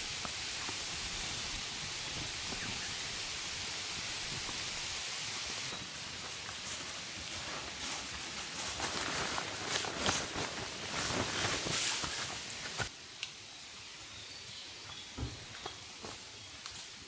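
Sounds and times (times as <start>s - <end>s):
rustling of dry material: 0.0s - 12.9s.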